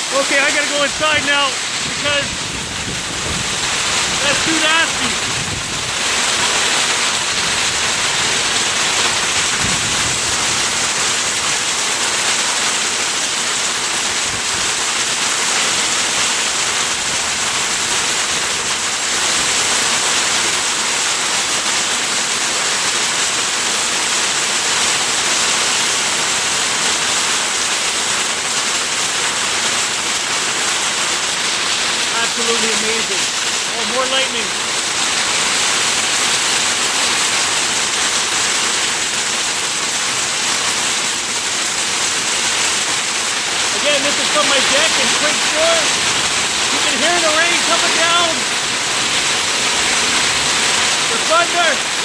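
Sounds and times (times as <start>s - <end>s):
heavy rain pouring: 0.0s - 52.0s.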